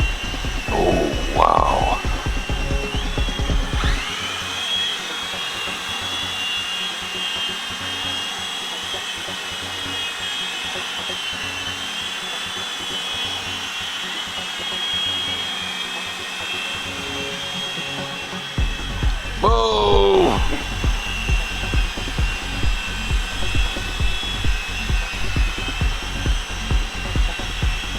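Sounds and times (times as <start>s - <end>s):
toy helicopters whining: 0.0s - 27.9s.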